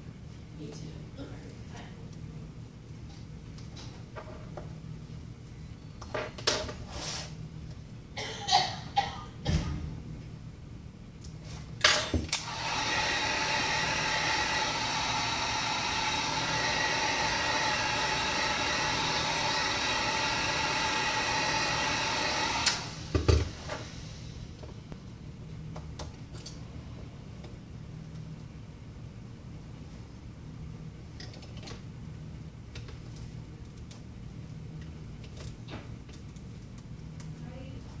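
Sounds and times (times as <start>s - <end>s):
heat gun blowing: 12.4s - 24.3s.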